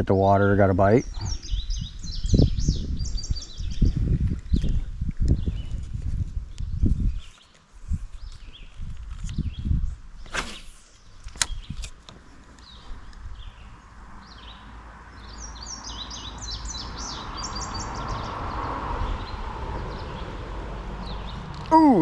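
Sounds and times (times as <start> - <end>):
songbird singing: 0.0 - 22.0
fishing rod swishing: 10.3 - 11.0.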